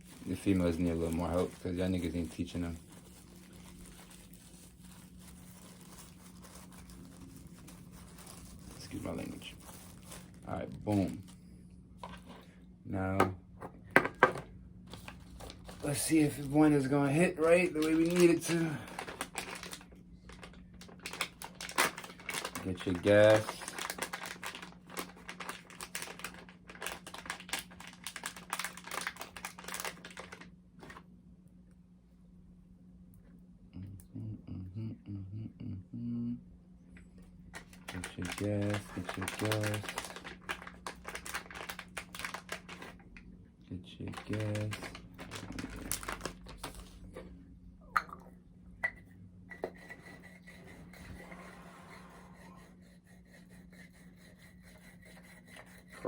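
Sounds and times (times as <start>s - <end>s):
dry plant material crackling: 0.0s - 11.4s, 15.0s - 30.4s, 37.6s - 43.0s, 44.0s - 46.9s
low steady hum: 0.0s - 56.0s.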